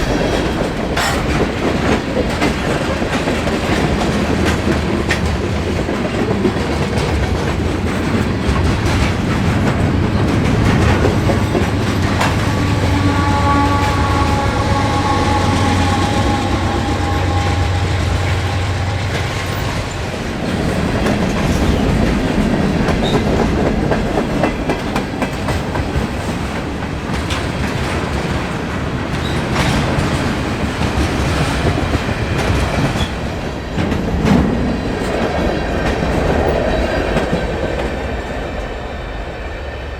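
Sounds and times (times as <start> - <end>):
train wheels clicking over rail joints: 0.0 - 38.4
deep rumble of freight train: 0.0 - 39.9
train horn held tone: 10.9 - 20.1.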